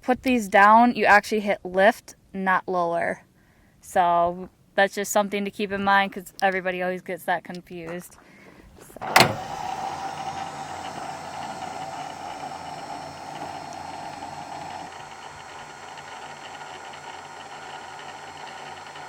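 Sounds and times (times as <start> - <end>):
electric motor whine: 9.0 - 19.0.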